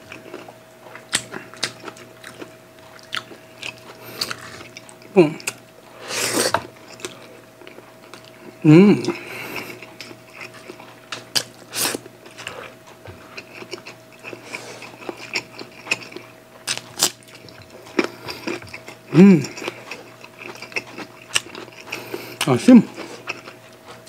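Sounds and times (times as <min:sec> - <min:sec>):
chewing crunchy bites: 0:00.0 - 0:05.7, 0:06.7 - 0:24.0
person humming: 0:05.1 - 0:05.5, 0:08.6 - 0:09.3, 0:19.1 - 0:19.6.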